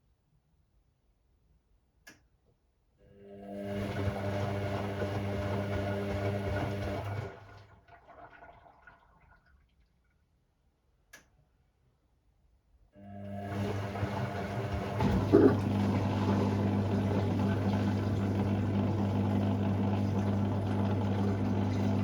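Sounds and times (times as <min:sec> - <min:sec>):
washing machine drum motor hum: 0:03.6 - 0:07.6, 0:13.2 - 0:22.0
water sloshing in drum: 0:13.5 - 0:22.0.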